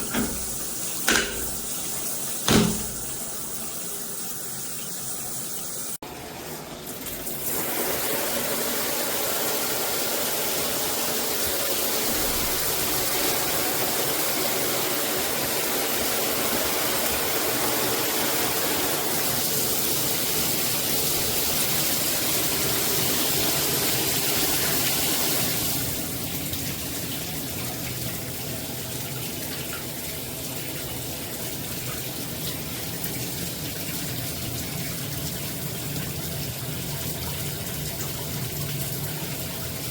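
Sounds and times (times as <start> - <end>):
shower water spraying: 0.0 - 5.1.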